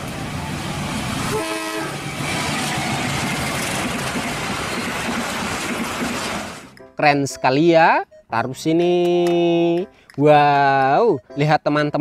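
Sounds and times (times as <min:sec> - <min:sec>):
train rumbling past: 0:00.0 - 0:06.8
train horn blast: 0:01.3 - 0:02.4.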